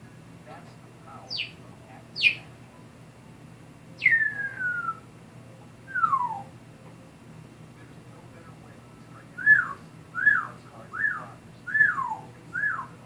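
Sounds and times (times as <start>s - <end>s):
parrot whistling falling notes: 4.0s - 5.1s, 5.9s - 6.5s.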